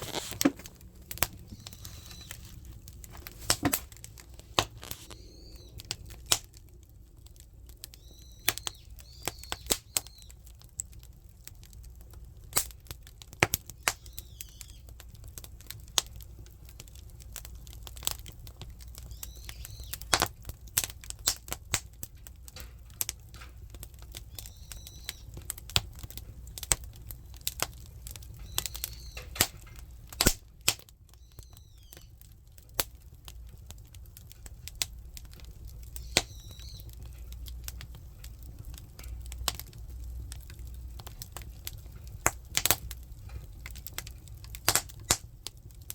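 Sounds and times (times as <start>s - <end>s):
firewood crackling and popping: 0.0s - 45.9s.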